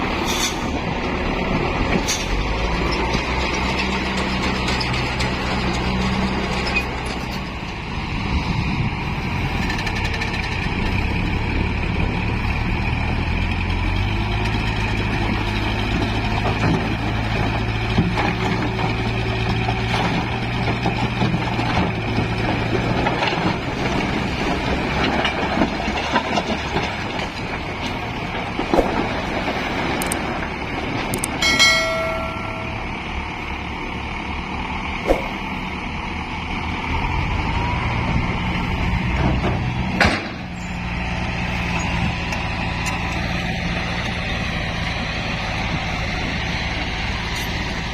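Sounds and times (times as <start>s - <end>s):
diesel truck engine running: 0.0s - 47.9s
short pitched tone: 31.4s - 33.0s.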